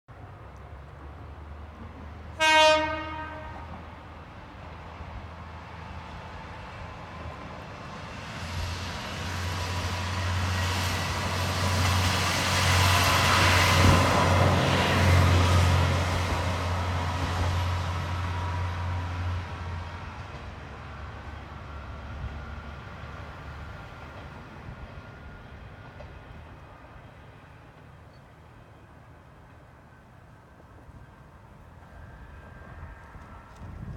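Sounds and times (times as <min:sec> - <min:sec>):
diesel train engine and wheels: 0:00.1 - 0:33.9
train horn blast: 0:02.4 - 0:03.8.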